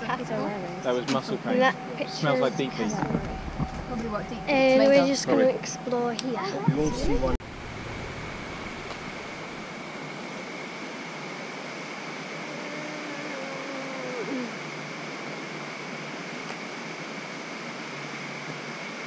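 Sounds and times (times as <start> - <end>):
high-pitched whine: 0.0 - 19.0
low hum sliding down: 1.9 - 6.0, 6.6 - 10.0.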